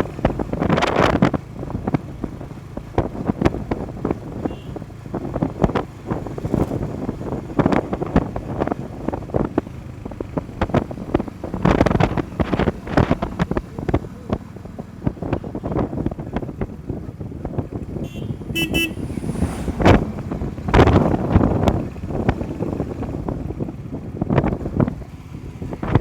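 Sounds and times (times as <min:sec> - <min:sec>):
motorcycle rumbling: 0:00.0 - 0:26.0
wind buffeting microphone: 0:00.0 - 0:26.0
vehicle horn toot: 0:04.4 - 0:04.8, 0:18.0 - 0:19.2.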